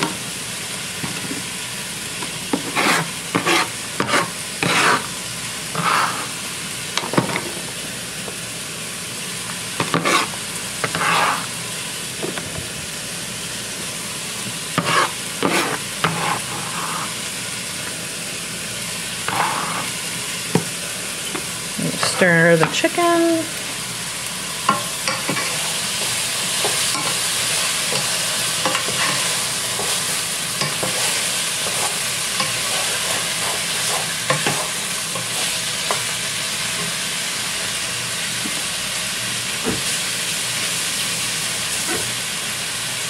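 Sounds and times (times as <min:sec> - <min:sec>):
chicken sizzling in a pan: 0:00.0 - 0:43.0
metal scraper scraping a board: 0:02.6 - 0:05.0, 0:09.9 - 0:10.3.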